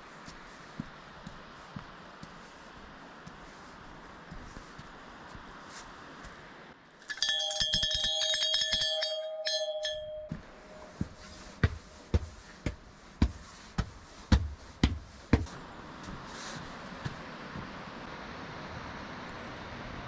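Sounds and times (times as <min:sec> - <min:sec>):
metal bell ringing rapidly: 0:07.0 - 0:10.9
heavy footsteps thudding: 0:10.2 - 0:16.4.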